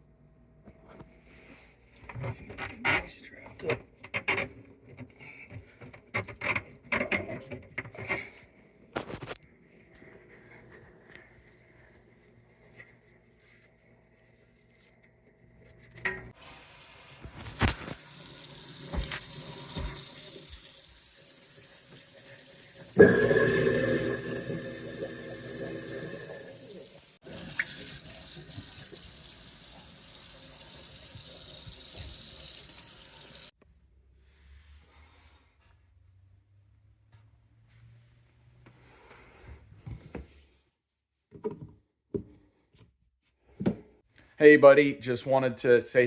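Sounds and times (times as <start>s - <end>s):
tap water running into sink: 16.4s - 33.5s
garbage disposal motor hum: 18.0s - 33.5s.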